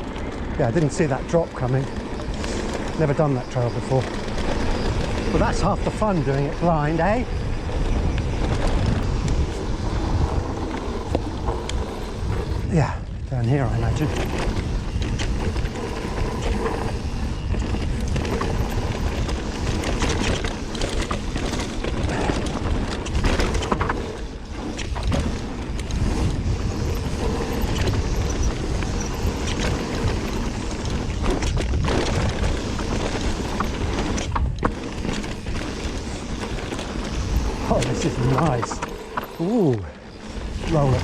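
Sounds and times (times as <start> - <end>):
bike tyre noise: 0.0 - 41.0
wind rush on microphone: 0.0 - 41.0
bike knocks and rattles: 13.4 - 41.0.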